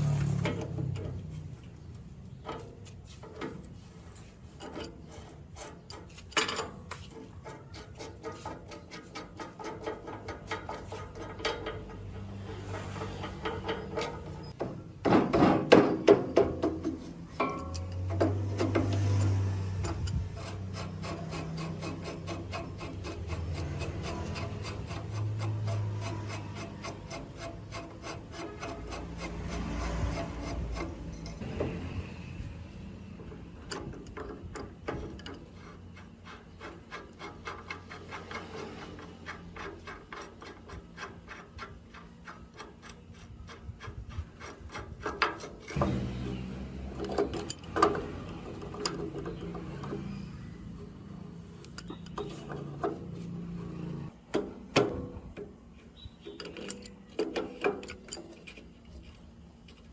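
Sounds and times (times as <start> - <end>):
rubbing or filing strokes: 7.0 - 11.4, 20.3 - 31.4, 35.4 - 45.8.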